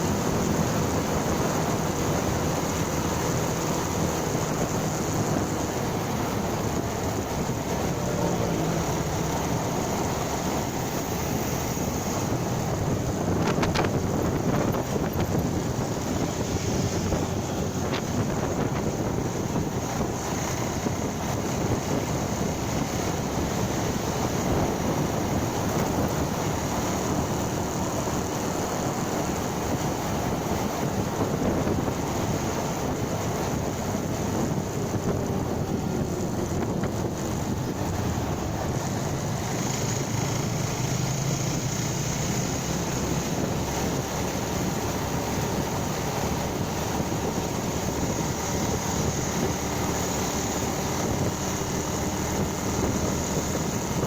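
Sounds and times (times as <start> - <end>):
motorcycle engine: 0.0 - 54.0
wind rushing over microphone: 0.0 - 54.0.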